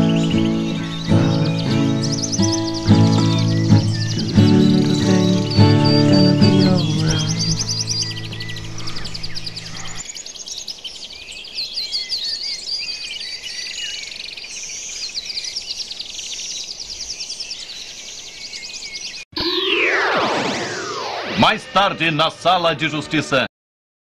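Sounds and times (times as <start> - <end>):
music track: 0.0 - 8.4, 19.4 - 23.5
small birds chirping: 0.0 - 19.3.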